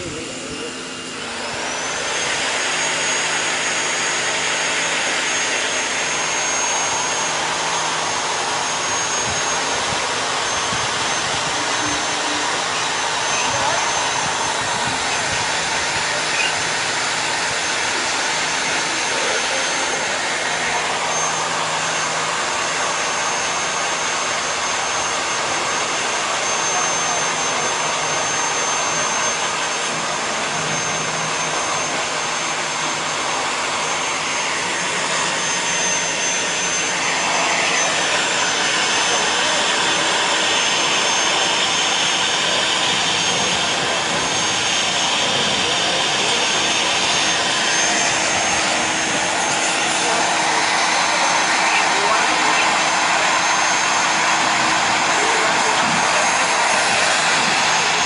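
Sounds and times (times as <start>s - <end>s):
pressure washer hissing: 0.0s - 24.9s
faint high whine: 0.0s - 58.0s.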